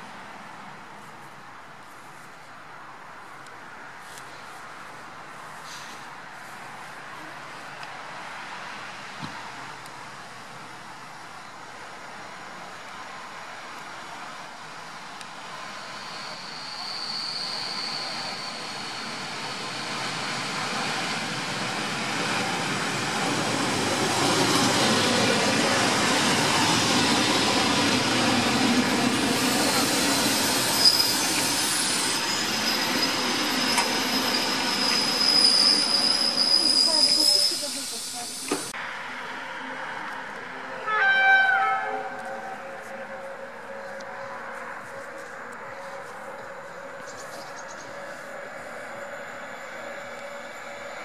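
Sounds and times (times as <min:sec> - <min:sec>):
outdoor ambience: 0:00.0 - 0:51.0
train rolling through station: 0:00.0 - 0:51.0
metallic wheel squeal: 0:15.9 - 0:19.3, 0:30.2 - 0:37.7.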